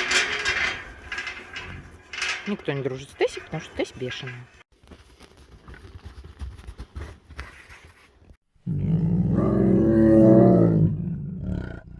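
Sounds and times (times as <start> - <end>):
tiger roaring: 8.6 - 11.9.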